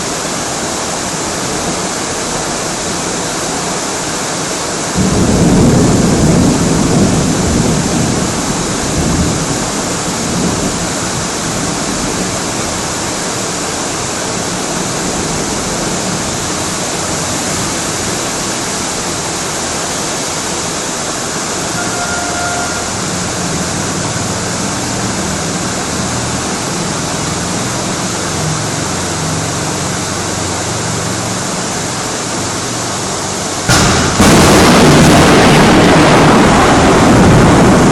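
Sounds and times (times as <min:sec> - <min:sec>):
storm wind and rain rushing: 0:00.0 - 0:37.9
wind gust rumbling: 0:33.7 - 0:37.9.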